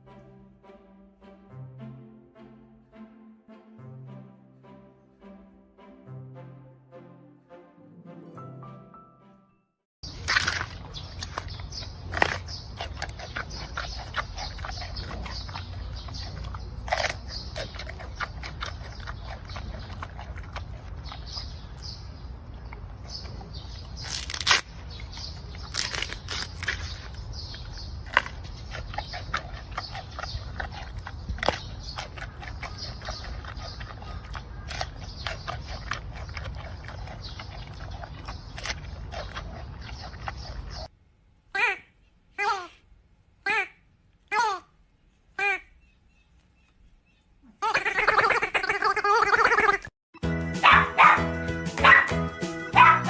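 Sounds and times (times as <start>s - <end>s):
animal chewing and crunching: 10.0s - 40.9s.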